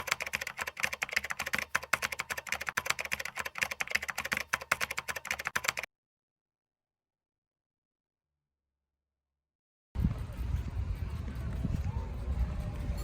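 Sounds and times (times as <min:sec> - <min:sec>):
keyboard typing: 0:00.0 - 0:05.9.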